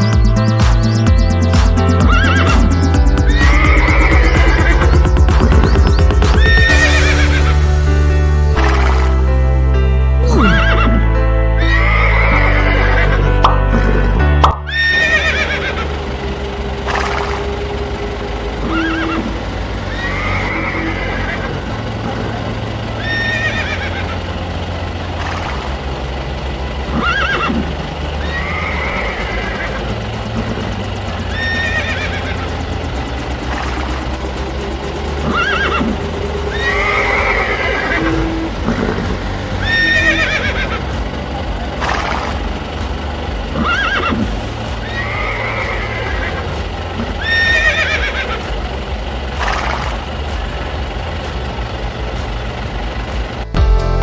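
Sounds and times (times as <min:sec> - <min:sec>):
background music with bass line: 0:00.0 - 0:54.0
horse whinnying: 0:02.0 - 0:05.0, 0:06.3 - 0:07.6, 0:10.2 - 0:14.1, 0:14.7 - 0:15.8, 0:18.6 - 0:21.5, 0:23.0 - 0:24.2, 0:26.9 - 0:27.6, 0:28.2 - 0:29.8, 0:31.3 - 0:32.3, 0:35.2 - 0:40.8, 0:43.6 - 0:46.4, 0:47.2 - 0:48.4.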